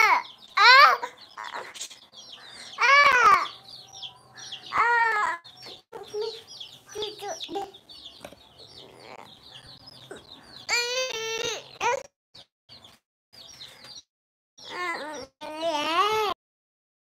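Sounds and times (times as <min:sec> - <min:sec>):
chicks peeping: 0:00.0 - 0:12.0, 0:12.7 - 0:14.0, 0:14.6 - 0:15.3
child crying out: 0:02.8 - 0:03.5, 0:04.7 - 0:05.4.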